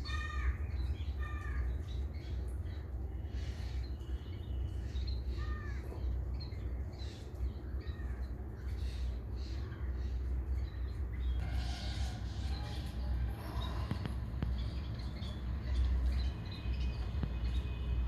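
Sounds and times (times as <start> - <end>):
harsh caw-like bird calls: 0.0 - 1.7, 5.3 - 6.0, 11.4 - 15.2
steady low rumble: 11.3 - 16.6.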